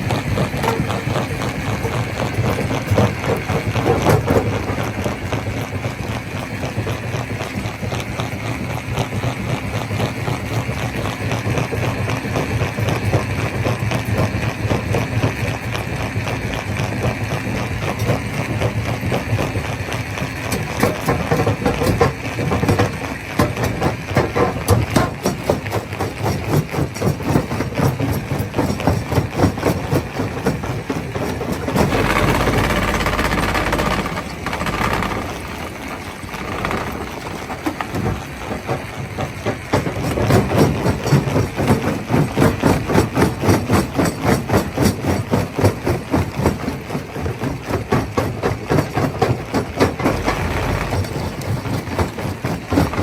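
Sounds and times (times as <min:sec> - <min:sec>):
rock crusher machine drone: 0:00.0 - 0:53.0.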